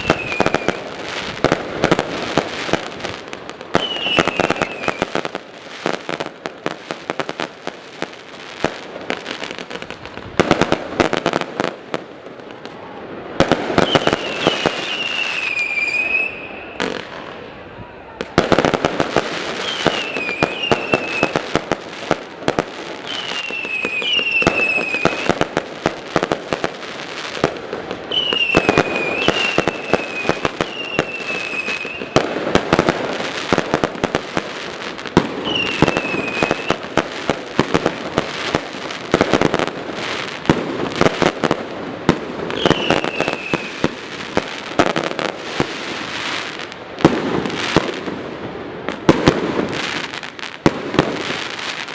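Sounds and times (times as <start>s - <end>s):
falling firework whistle: 0.0s - 3.1s, 3.7s - 6.0s, 12.6s - 21.6s, 23.0s - 25.6s, 28.1s - 33.9s, 35.2s - 41.4s, 42.5s - 48.0s
fireworks bangs and crackling: 0.0s - 51.9s.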